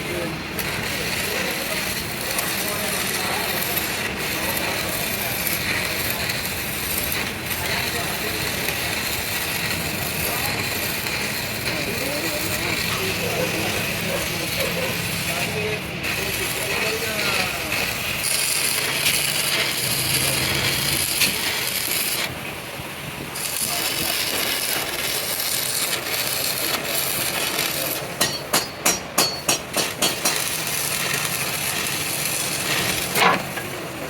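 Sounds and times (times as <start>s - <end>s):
sharp metal knocks: 28.2s - 30.4s.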